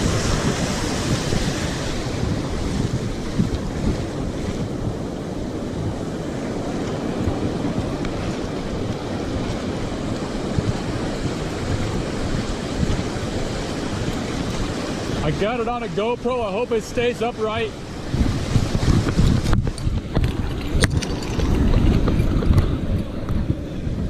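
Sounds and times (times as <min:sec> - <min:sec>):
ocean surf rushing: 0:00.0 - 0:24.0
wind buffeting microphone: 0:00.0 - 0:24.0.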